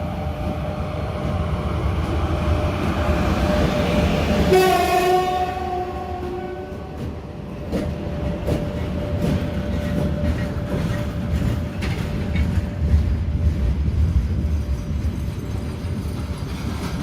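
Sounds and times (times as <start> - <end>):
low train rumble: 0.0 - 17.0
train horn: 4.2 - 7.0
train wheels knocking over rail joints: 6.2 - 13.6.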